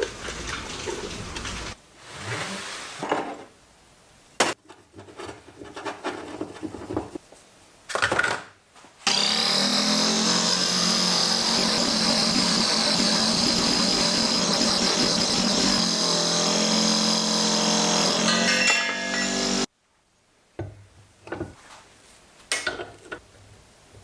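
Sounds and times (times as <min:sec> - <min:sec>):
power tool motor whining: 0:09.1 - 0:19.7.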